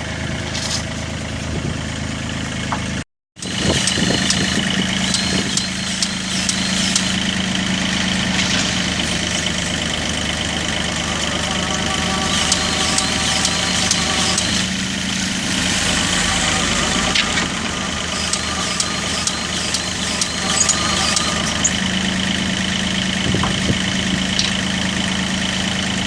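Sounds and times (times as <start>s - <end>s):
diesel engine idling: 0.0s - 26.0s
sharp clicks: 3.4s - 7.2s.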